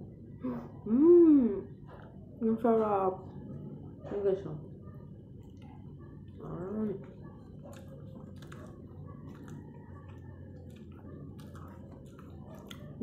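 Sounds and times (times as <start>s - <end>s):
person humming: 0.4s - 1.6s
chewing with wet smacks: 2.8s - 13.0s.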